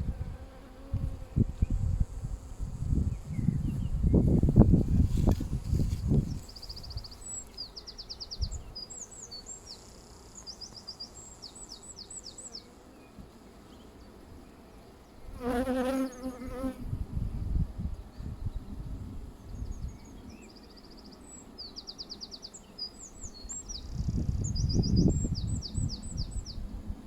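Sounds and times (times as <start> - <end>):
honeybee buzzing: 0.0 - 3.2, 15.3 - 16.9
songbird trilling and chirping: 19.5 - 26.6.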